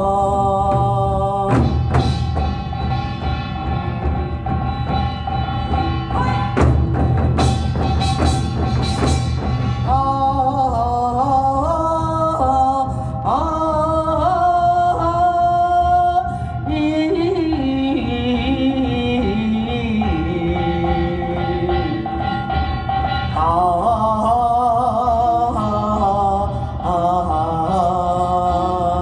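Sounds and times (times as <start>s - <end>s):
drum strikes: 0.7s - 10.9s.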